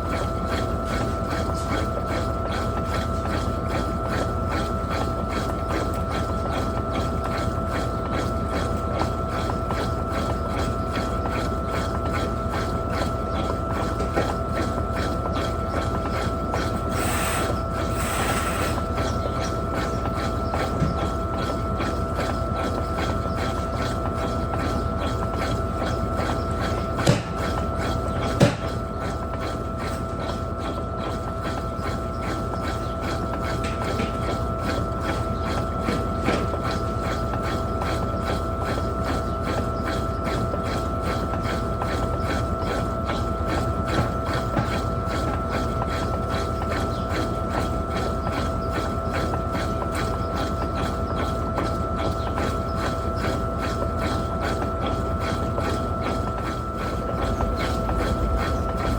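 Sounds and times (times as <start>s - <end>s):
washing machine running: 0.0s - 58.9s
sharp knocks: 27.0s - 27.5s, 28.4s - 28.7s.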